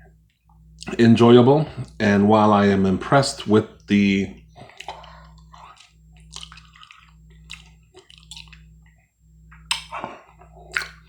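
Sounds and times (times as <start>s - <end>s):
low electrical hum: 0.0s - 11.0s
chewing and wet mouth sounds: 4.4s - 11.0s.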